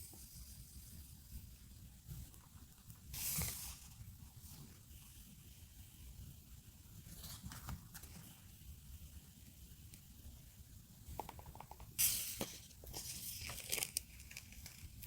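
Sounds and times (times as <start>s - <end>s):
paper rustling: 12.3s - 15.0s.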